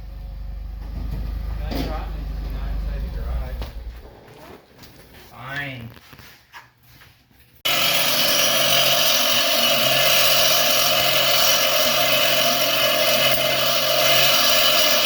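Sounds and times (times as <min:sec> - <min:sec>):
power tool whirring: 0:07.7 - 0:15.0.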